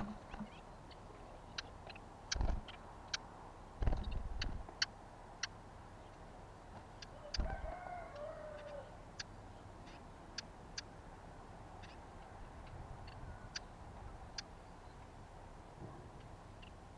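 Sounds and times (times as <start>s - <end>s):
distant rooster crowing: 7.1s - 9.0s.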